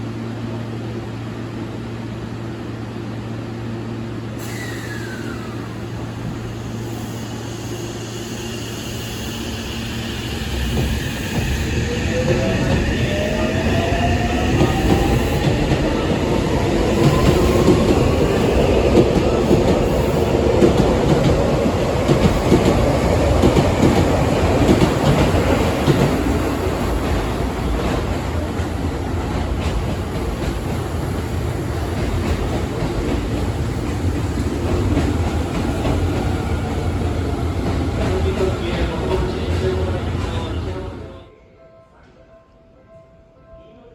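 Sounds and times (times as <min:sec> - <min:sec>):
train inverter whine: 0:00.0 - 0:41.3
wheels on rail clickety-clack: 0:10.6 - 0:40.8.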